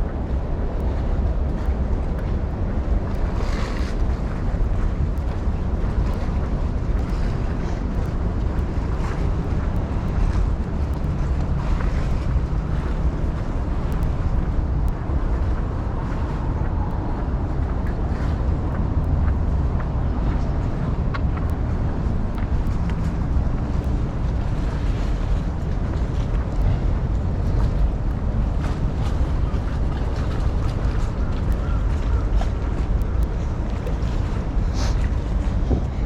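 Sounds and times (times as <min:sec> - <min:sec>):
wind buffeting microphone: 0:00.0 - 0:36.0
faint street ambience: 0:07.3 - 0:36.0.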